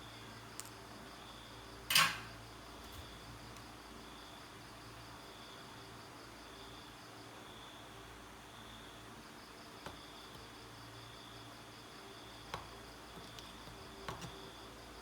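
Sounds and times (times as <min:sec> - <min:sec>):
crickets chirping: 0:00.0 - 0:15.0
hard object clattering on workbench: 0:01.9 - 0:02.3.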